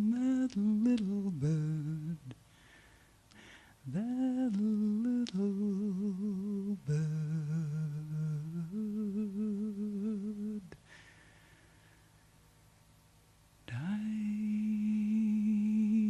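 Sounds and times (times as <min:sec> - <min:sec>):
person humming with vibrato: 0:00.0 - 0:02.3, 0:03.9 - 0:10.8.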